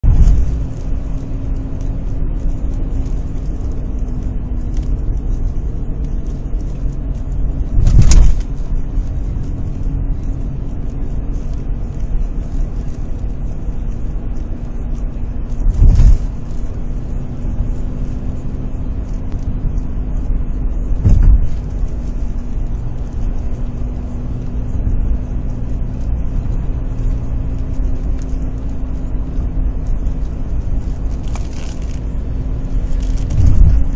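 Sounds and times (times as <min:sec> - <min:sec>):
road rumble: 0:00.0 - 0:33.9
steady hum from car front: 0:00.0 - 0:33.9
loud thumps: 0:15.7 - 0:16.4, 0:21.0 - 0:21.8.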